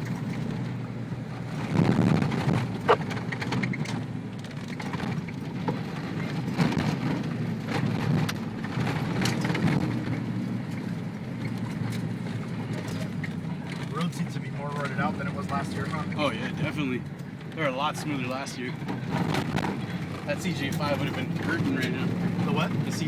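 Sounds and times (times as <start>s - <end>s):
engine and road drone: 0.0s - 23.0s.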